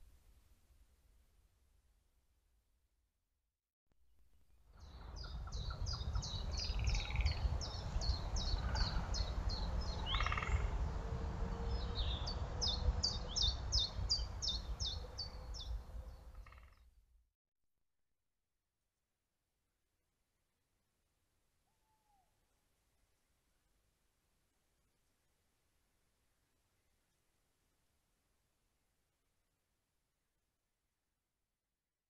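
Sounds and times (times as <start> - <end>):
other bird calls: 10.0 - 10.7.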